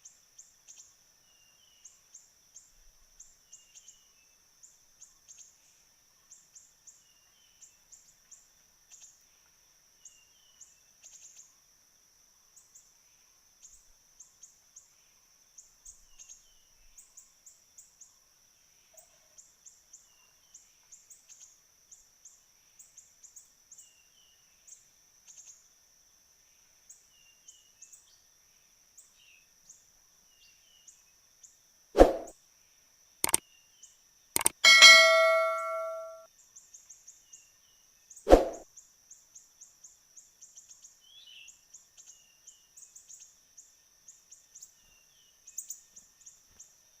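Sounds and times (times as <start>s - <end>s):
bird chirps: 34.4s - 36.2s.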